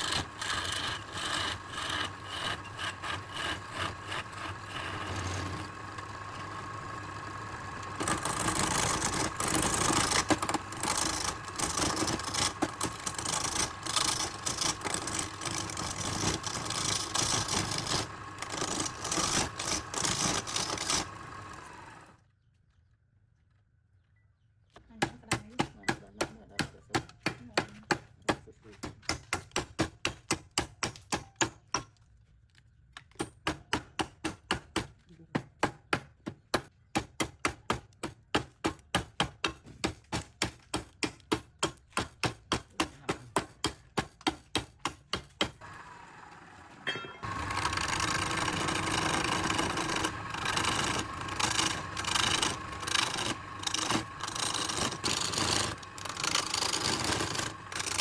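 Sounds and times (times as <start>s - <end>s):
wood rasping and rubbing: 0.0s - 21.8s, 47.2s - 58.0s.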